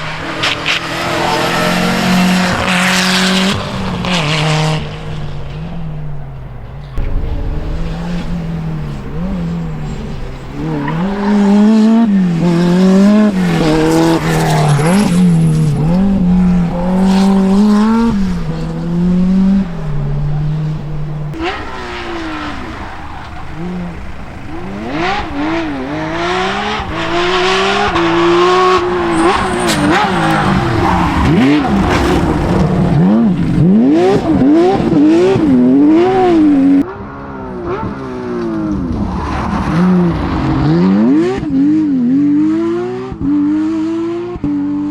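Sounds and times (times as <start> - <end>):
rally car engine revving: 0.0 - 44.9.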